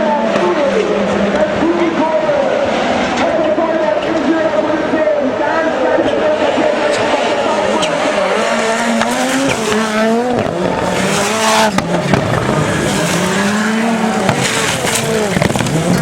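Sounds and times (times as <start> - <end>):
race car engines accelerating: 0.0 - 16.0
sharp exhaust pops: 7.7 - 16.0.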